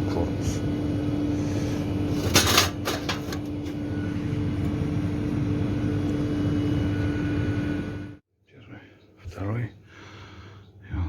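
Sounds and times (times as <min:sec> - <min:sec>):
mechanical drone with hum: 0:00.0 - 0:08.2.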